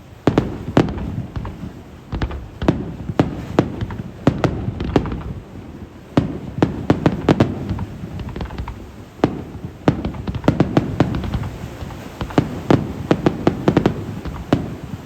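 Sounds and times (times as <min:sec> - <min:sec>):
fireworks bangs: 0:00.0 - 0:15.0
rumbling echoes: 0:00.3 - 0:05.8.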